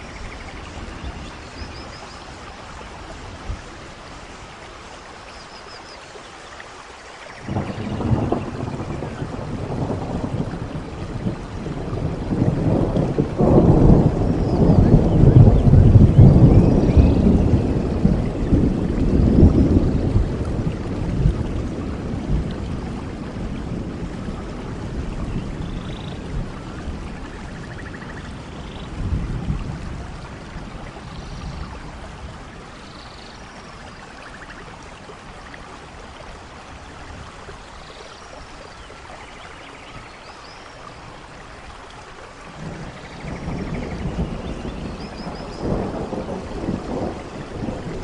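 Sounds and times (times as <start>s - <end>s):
steady rain falling: 0.0s - 48.0s
rolling thunder: 7.4s - 33.9s, 42.4s - 48.0s.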